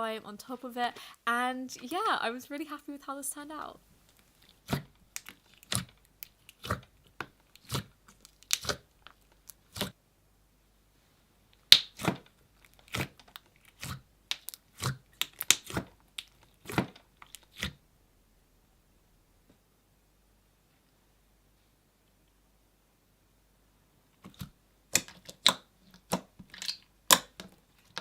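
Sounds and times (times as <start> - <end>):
slime squished by hand: 4.2 - 10.0, 11.6 - 17.8.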